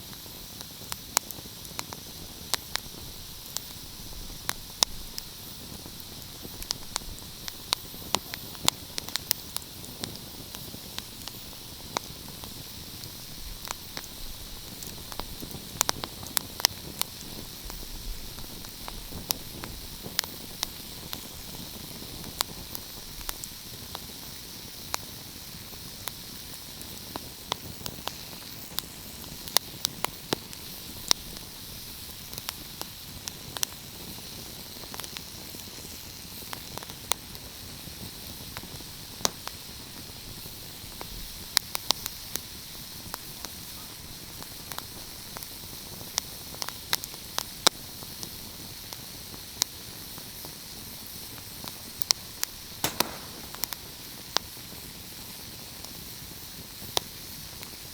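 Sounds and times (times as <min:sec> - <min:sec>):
fireplace fire crackling: 0:00.6 - 0:30.8, 0:50.4 - 0:54.4.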